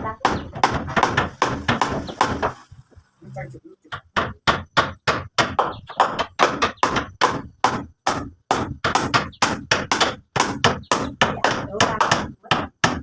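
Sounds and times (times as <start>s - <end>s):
tool knocking rapidly: 3.9s - 13.0s.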